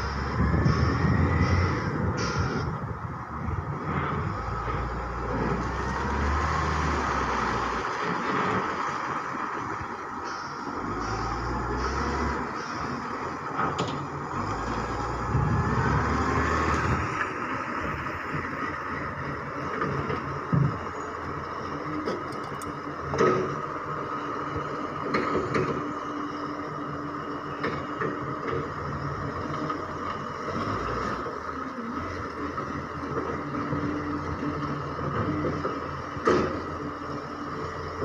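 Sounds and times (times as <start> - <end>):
garbage truck running: 0.0 - 38.0.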